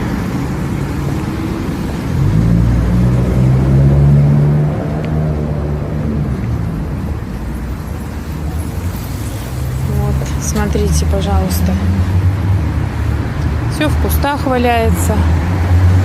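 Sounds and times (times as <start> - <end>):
street traffic noise: 0.0 - 16.0
vehicle engine passing by: 1.4 - 7.2.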